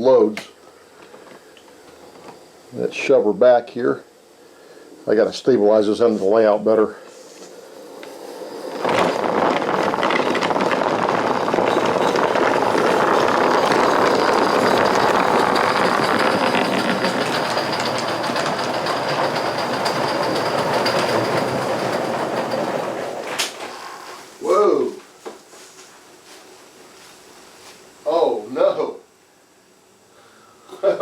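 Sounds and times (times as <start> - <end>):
wheels rolling on track: 7.5 - 24.2
steam locomotive chuffing: 9.2 - 23.4.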